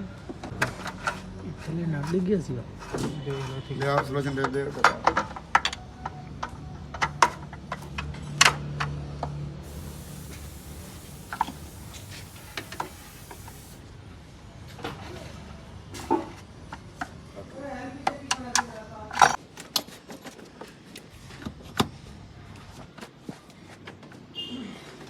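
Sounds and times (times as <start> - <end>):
steady hiss: 9.6 - 13.8.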